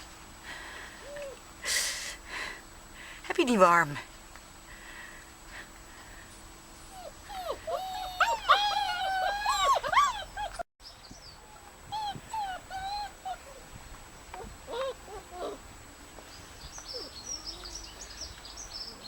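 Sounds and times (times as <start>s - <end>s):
puppies whining and whimpering: 6.9s - 10.7s, 11.4s - 13.7s, 14.4s - 15.7s, 16.9s - 17.8s.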